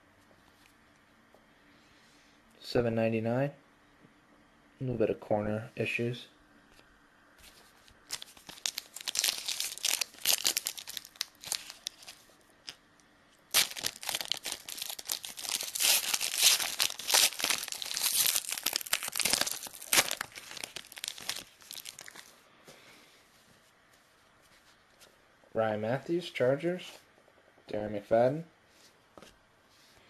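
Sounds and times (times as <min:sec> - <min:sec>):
card pack wrapper crinkling: 0:08.0 - 0:12.8, 0:13.5 - 0:22.3.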